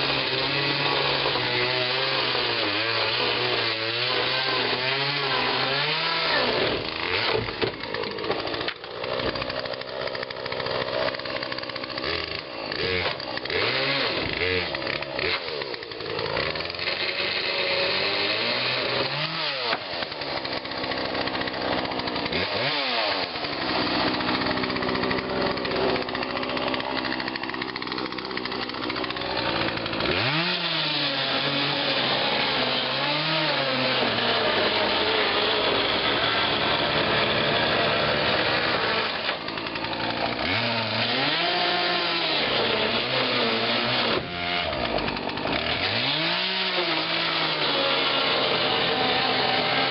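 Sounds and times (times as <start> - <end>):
chainsaw cutting: 0.0 - 49.9.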